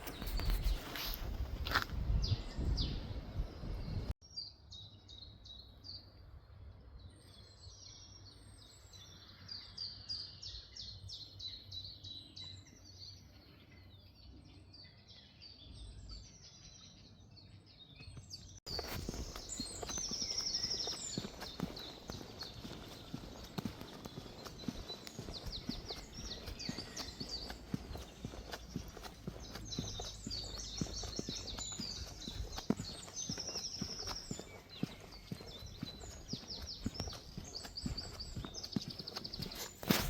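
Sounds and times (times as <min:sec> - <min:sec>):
walking noise: 0:00.0 - 0:02.2, 0:18.7 - 0:40.0
songbirds singing: 0:00.0 - 0:40.0.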